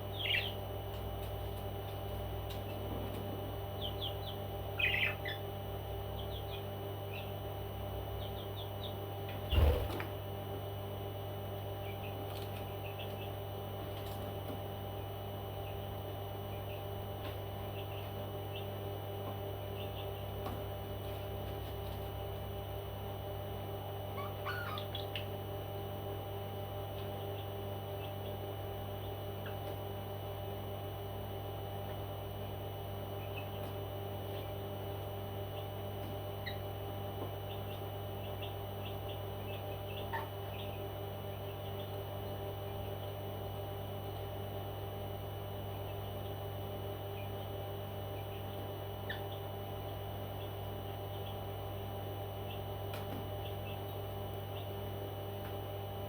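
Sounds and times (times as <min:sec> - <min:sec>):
electrical hum: 0:00.0 - 0:56.0
parrot chirping: 0:24.2 - 0:25.2.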